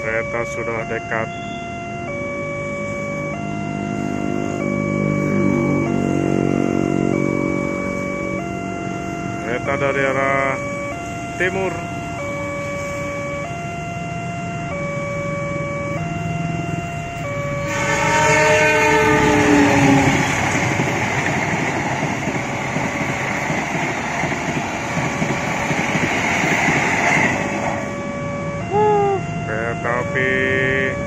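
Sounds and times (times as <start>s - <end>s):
railroad crossing alarm two tones: 0.0s - 31.0s
train carriages rumbling and clattering: 17.2s - 28.6s
train horn: 17.6s - 20.6s.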